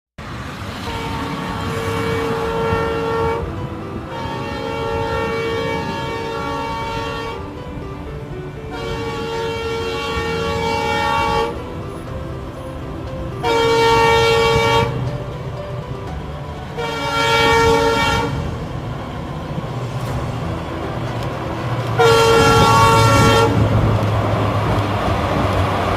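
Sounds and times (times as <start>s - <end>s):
train rumbling: 0.2s - 25.9s
train horn blasts: 0.7s - 7.8s, 8.5s - 12.2s, 13.4s - 15.2s, 16.7s - 18.7s, 21.4s - 23.9s.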